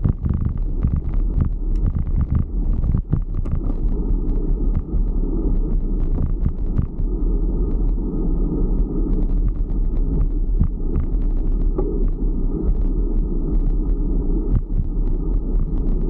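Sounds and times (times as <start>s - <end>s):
small clicks and rattles: 0.0s - 5.1s
bicycle rumbling over road: 0.0s - 16.0s.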